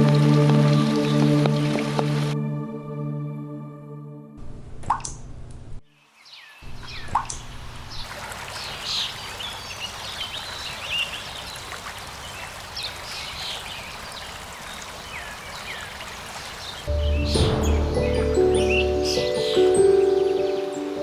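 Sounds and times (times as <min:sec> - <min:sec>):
birds chirping: 0:05.9 - 0:21.0
water trickling and dripping: 0:06.7 - 0:21.0.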